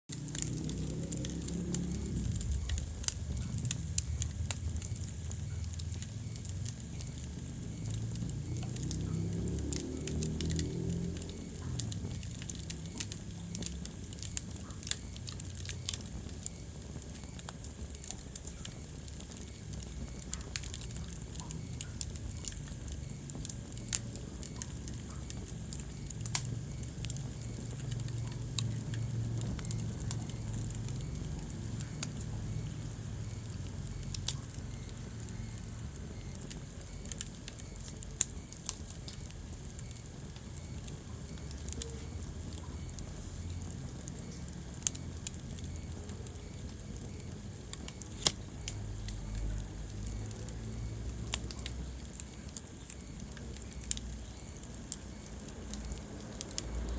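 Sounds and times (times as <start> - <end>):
fire crackling and popping: 0.1 - 56.9
fire flames rumbling: 0.1 - 56.9.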